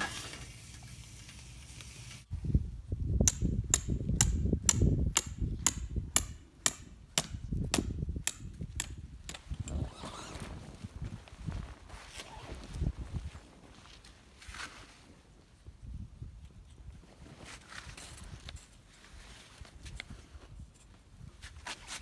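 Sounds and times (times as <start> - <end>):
hammer striking metal peg: 3.2 - 9.8.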